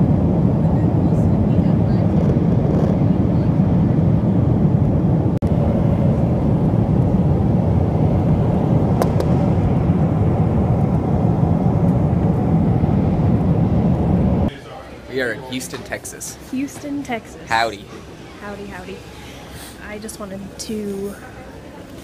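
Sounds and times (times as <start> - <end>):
airliner cabin engine rumble: 0.0 - 14.5.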